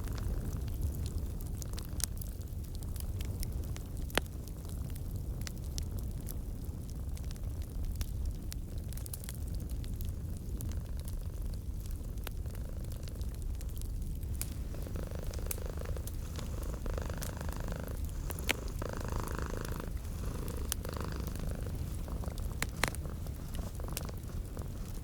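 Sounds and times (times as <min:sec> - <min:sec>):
cat purring: 0:00.0 - 0:01.7, 0:11.2 - 0:13.4, 0:14.2 - 0:25.0
wood fire popping and crackling: 0:00.0 - 0:25.0.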